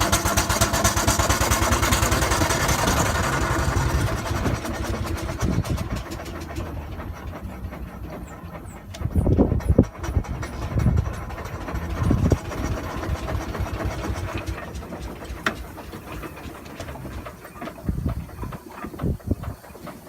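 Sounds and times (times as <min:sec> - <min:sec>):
mechanical clatter: 0:00.0 - 0:20.0
steam exhaust beats: 0:00.0 - 0:20.0
steam hiss: 0:13.3 - 0:20.0.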